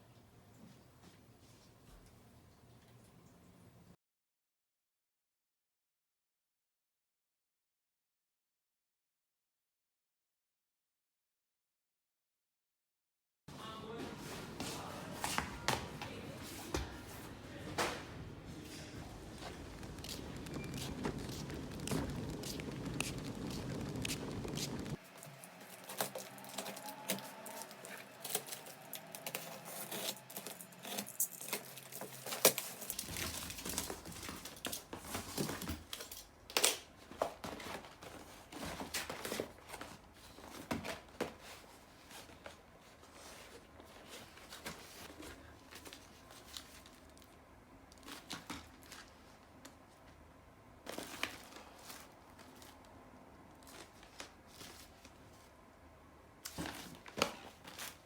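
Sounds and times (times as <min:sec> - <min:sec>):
crinkling and rustling: 0:14.0 - 0:55.8, 0:56.4 - 0:58.0.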